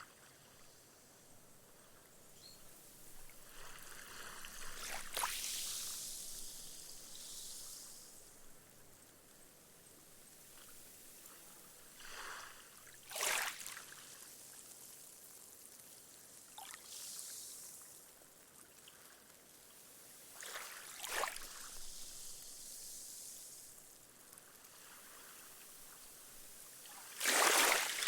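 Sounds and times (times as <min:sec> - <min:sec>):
small waves lapping on sand: 0:02.7 - 0:09.2, 0:10.2 - 0:28.0
foam hissing into sand: 0:03.7 - 0:08.4.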